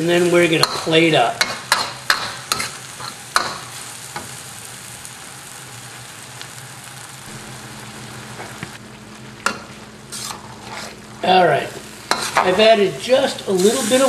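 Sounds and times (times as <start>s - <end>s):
stir-fry sizzling in a wok: 0.0s - 14.0s
low steady hum: 6.9s - 13.1s.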